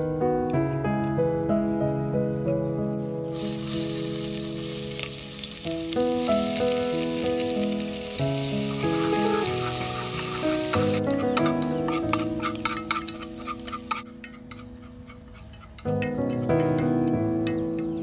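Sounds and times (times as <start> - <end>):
soft piano music: 0.0 - 18.0
food sizzling in hot oil: 3.3 - 16.4
chopsticks clicking in a pot: 10.7 - 18.0.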